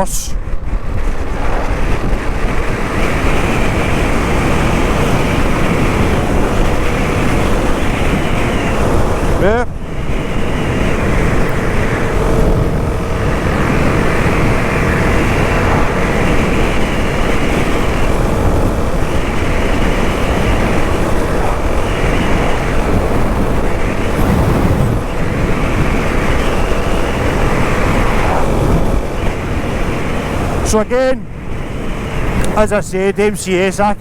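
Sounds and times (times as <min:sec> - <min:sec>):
wind and road noise: 0:00.0 - 0:34.0
motorcycle engine: 0:00.7 - 0:30.6.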